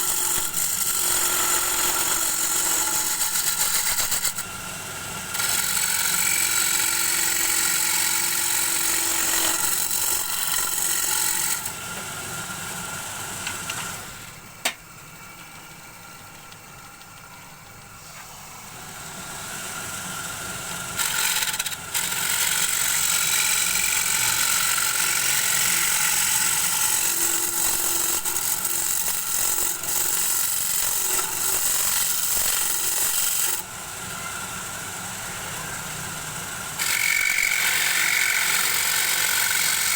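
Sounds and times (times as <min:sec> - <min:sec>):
wood lathe running: 0:00.0 - 0:14.3, 0:18.9 - 0:39.9
turning tool scraping wood: 0:36.8 - 0:39.9.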